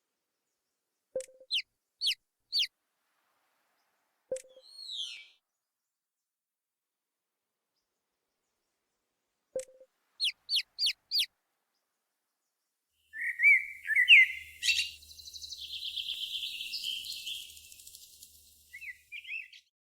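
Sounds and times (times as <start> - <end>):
pet bird chirping and warbling: 1.2 - 2.7, 4.3 - 5.4, 9.6 - 11.3, 13.2 - 19.6.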